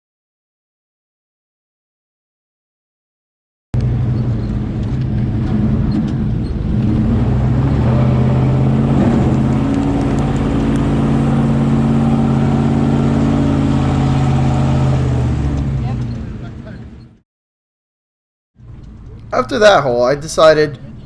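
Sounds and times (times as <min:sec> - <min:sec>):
truck engine revving under load: 0:03.8 - 0:17.2, 0:18.6 - 0:21.0.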